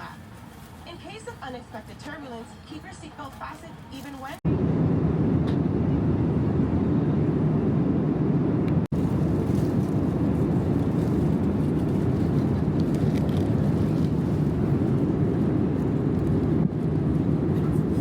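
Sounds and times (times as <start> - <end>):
airliner cabin engine rumble: 4.2 - 18.0.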